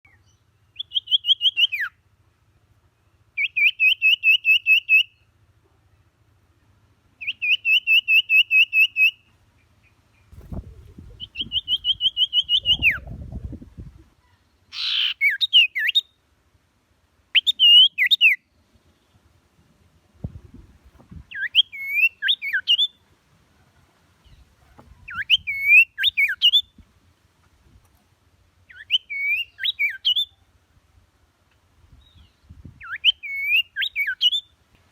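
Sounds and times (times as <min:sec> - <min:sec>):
songbird singing: 0:00.0 - 0:34.9
wind rumble on microphone: 0:10.3 - 0:14.2, 0:20.1 - 0:21.4, 0:31.8 - 0:33.0.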